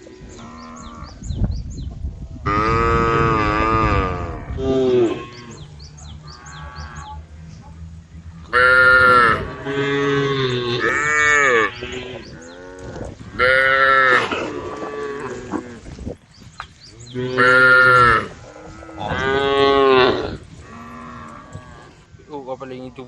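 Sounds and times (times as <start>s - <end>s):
cows mooing: 2.4s - 7.4s, 8.4s - 16.0s, 17.0s - 22.1s.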